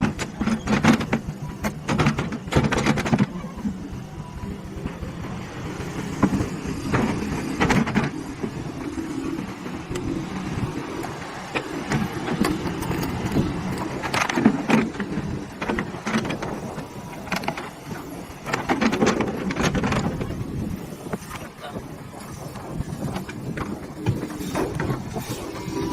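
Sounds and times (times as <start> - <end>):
sharp knocks and rattles: 0.0 - 3.3, 6.1 - 10.1, 11.0 - 20.5
excavator engine hum: 0.0 - 25.9.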